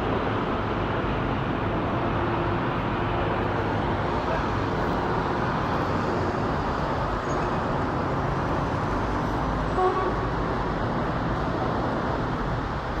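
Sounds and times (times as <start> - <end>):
jet engines roaring overhead: 0.0 - 9.7.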